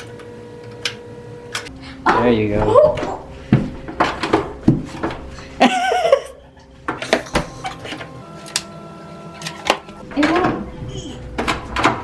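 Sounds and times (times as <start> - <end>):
clicks and knocks of handling: 9.4 - 10.0.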